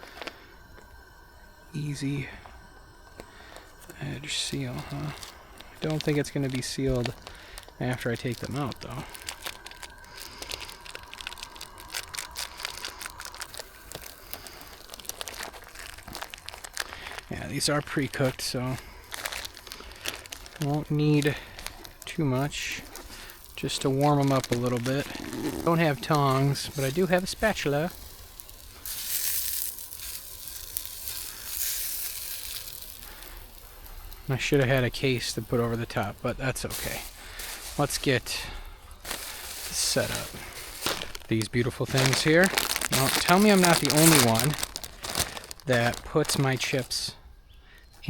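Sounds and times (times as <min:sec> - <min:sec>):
sausages sizzling in oil: 0:00.0 - 0:47.0
plastic package crinkling: 0:03.2 - 0:47.2.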